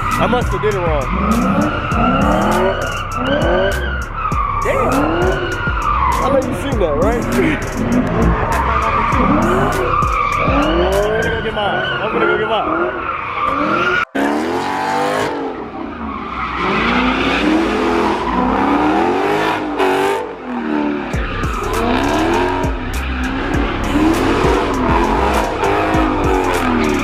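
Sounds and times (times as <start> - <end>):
heavy bass beat: 0.0 - 11.6, 16.6 - 27.0
tyres squealing: 0.0 - 14.1
car engine revving: 0.0 - 27.0.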